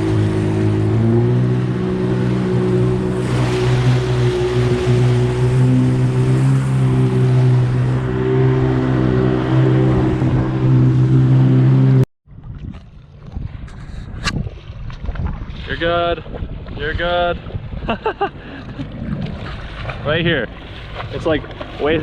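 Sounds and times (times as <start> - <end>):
jet ski engine running: 0.0 - 12.0
wind and water noise: 0.0 - 22.0.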